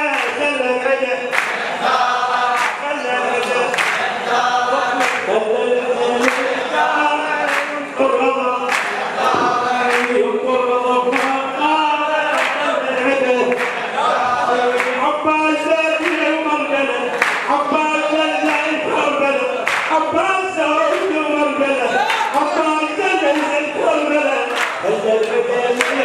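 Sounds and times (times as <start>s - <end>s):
men chanting in chorus: 0.0s - 26.0s
sharp beat: 9.2s - 10.2s.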